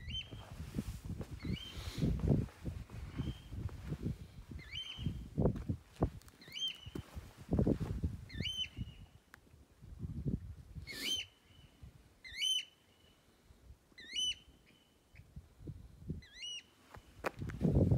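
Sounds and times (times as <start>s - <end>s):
bird whistled calls: 4.6s - 5.2s, 8.3s - 9.0s, 10.9s - 12.8s, 14.0s - 14.9s.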